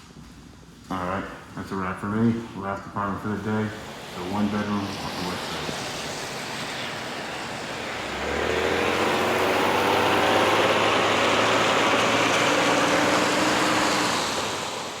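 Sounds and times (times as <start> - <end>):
vehicle engine running: 3.0 - 15.0.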